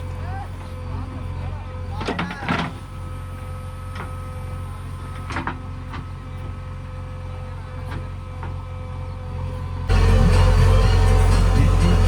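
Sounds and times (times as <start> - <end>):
heavy diesel engine running: 0.0 - 12.0
knocks and clanks: 2.0 - 2.9.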